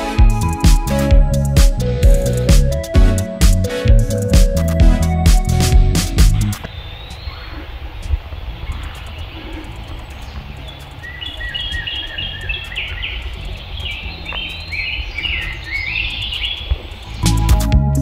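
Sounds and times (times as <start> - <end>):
loud music: 0.0 - 6.6, 17.2 - 18.0
bird singing whistled notes: 8.6 - 17.7.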